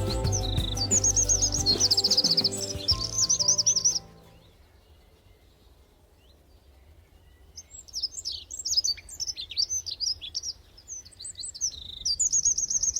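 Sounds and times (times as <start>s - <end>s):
songbird singing: 0.0s - 5.5s.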